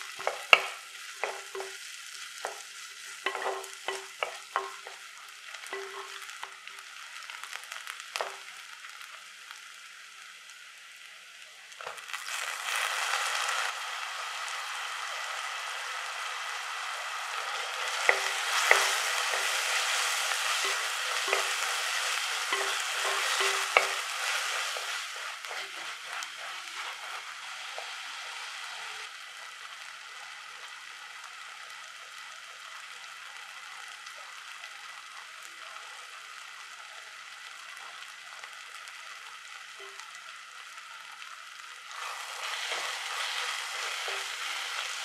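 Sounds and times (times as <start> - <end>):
food sizzling in hot oil: 0.0 - 45.0
spatula scraping pot: 3.2 - 4.9, 17.8 - 28.3.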